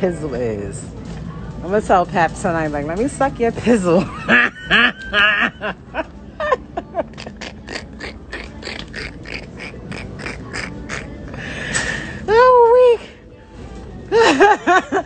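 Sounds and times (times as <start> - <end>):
woman laughing hard: 4.0 - 10.8, 14.1 - 15.0.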